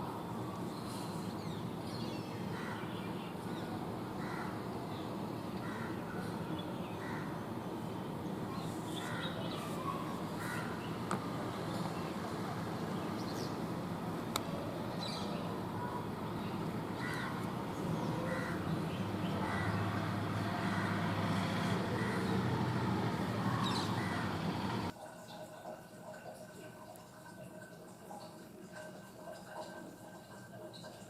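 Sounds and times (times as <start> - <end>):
birds calling: 0.7 - 24.9.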